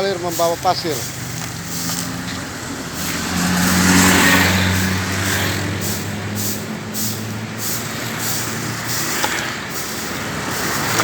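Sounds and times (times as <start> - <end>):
vehicle driving past: 1.1 - 11.0.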